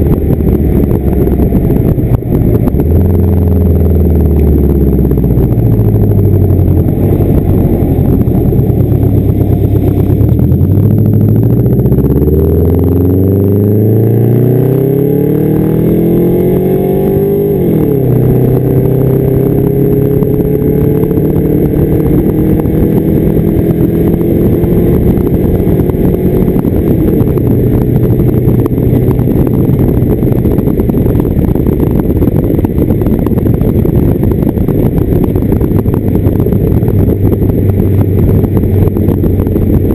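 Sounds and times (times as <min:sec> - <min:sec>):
car exhaust engine revving: 0:00.0 - 0:39.9.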